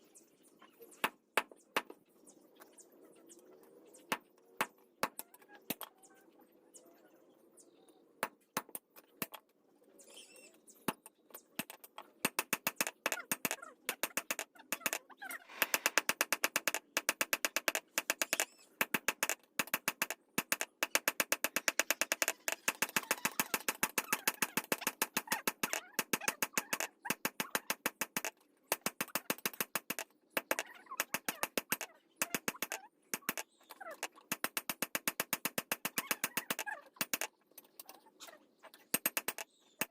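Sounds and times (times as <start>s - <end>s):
rapid hammer strikes: 11.6s - 33.4s, 34.1s - 37.3s, 39.0s - 39.9s.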